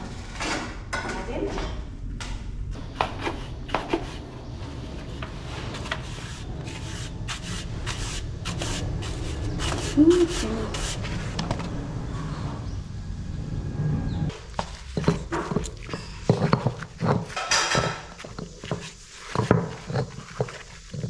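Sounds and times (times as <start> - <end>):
hand tool scraping hard surface: 3.0 - 11.5, 14.3 - 21.0.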